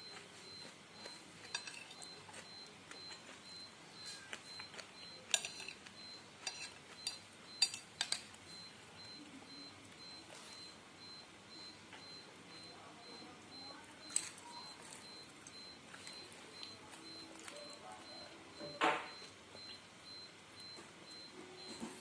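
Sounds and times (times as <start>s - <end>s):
cutlery clinking against a bowl: 1.0s - 2.5s, 4.0s - 8.4s, 14.1s - 15.0s.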